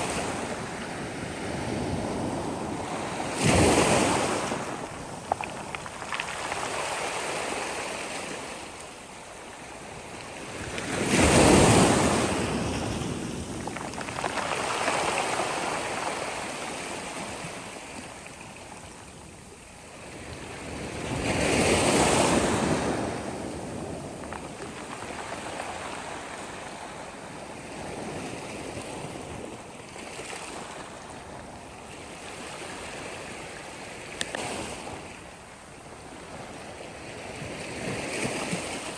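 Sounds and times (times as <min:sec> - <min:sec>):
sea waves breaking: 0:10.5 - 0:18.0.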